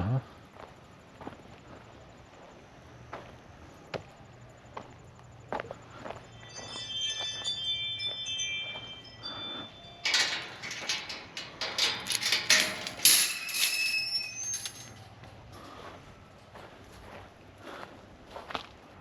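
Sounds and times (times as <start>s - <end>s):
chime-like ringing tones: 6.0s - 15.0s
clattering and rustling knocks: 10.1s - 15.0s.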